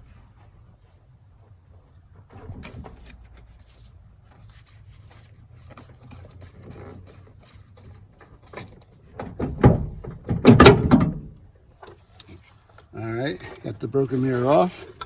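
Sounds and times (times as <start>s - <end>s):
louder knocks: 9.5s - 11.3s.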